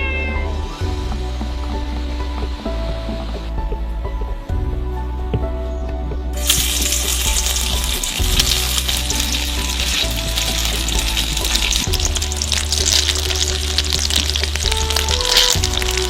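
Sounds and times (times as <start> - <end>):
background music: 0.0 - 16.0
food sizzling in hot oil: 6.4 - 16.0.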